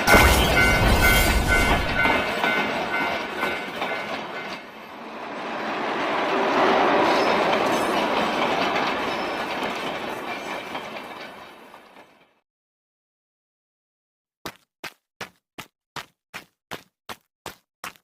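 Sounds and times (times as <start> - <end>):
railroad crossing bell: 0.0 - 11.3
train passing with wheel clatter: 0.0 - 12.4.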